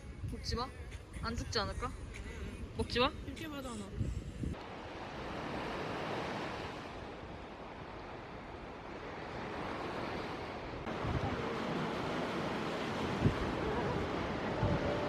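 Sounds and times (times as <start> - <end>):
wind gusting on microphone: 0.0 - 15.0
sea waves breaking on shore: 4.6 - 15.0.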